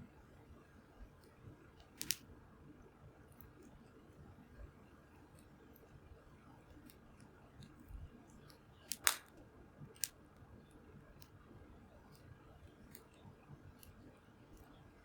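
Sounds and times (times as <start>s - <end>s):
wood fire crackling: 2.0s - 2.2s, 8.9s - 9.3s.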